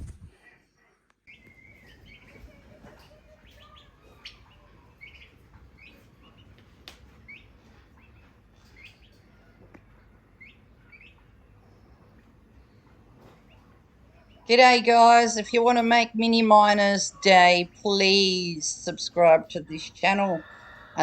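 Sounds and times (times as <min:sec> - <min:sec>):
faint bird chirps: 0:00.4 - 0:06.6, 0:07.2 - 0:14.6.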